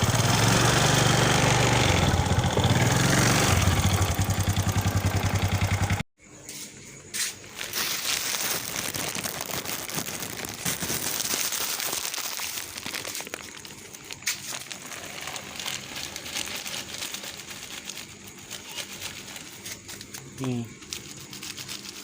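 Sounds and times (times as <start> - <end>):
crinkling rustling: 7.3 - 22.0.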